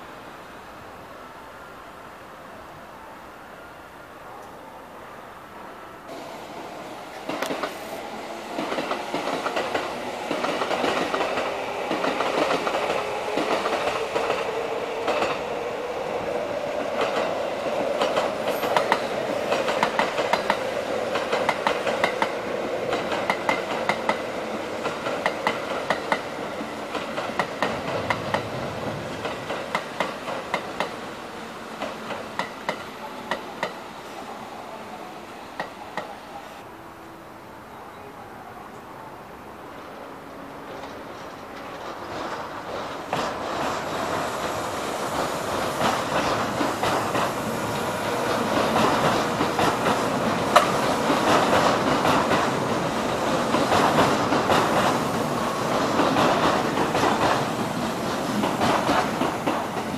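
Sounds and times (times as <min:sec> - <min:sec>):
electric train running past: 0:00.0 - 0:59.9
wheels clacking over rail joints: 0:08.5 - 0:15.7, 0:16.7 - 0:31.0, 0:40.6 - 0:59.9.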